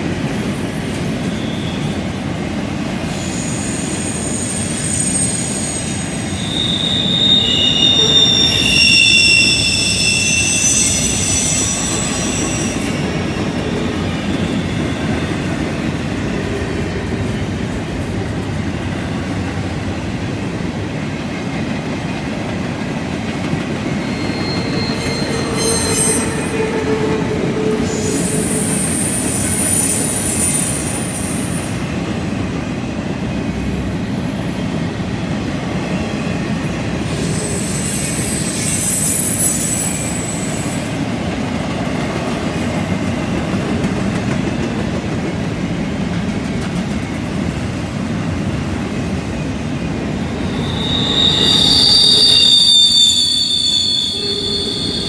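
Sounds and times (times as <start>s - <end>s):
wheel flanges squealing: 3.2s - 13.3s, 50.3s - 55.0s
freight train wheel rumble: 39.9s - 52.7s.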